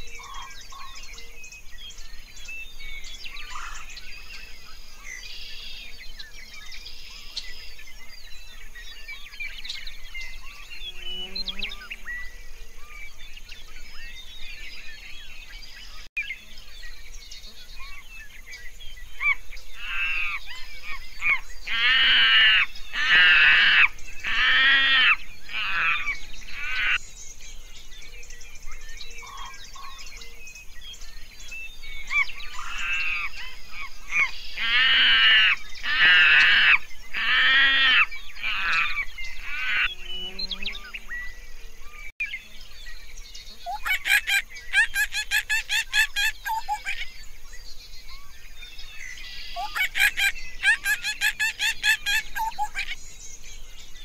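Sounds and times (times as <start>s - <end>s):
animal calling: 19.2s - 27.0s, 43.6s - 47.1s, 49.6s - 53.0s.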